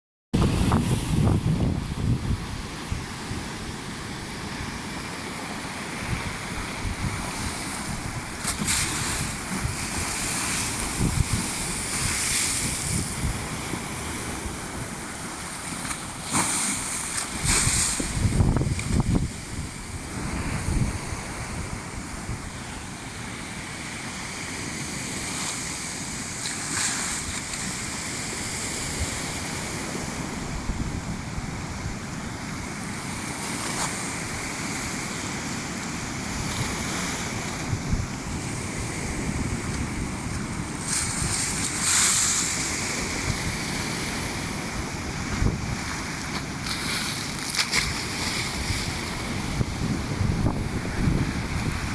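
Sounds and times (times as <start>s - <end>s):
wind buffeting microphone: 0.4s - 5.0s, 5.9s - 22.8s, 36.0s - 51.9s
sea surf crashing on shore: 0.4s - 51.9s.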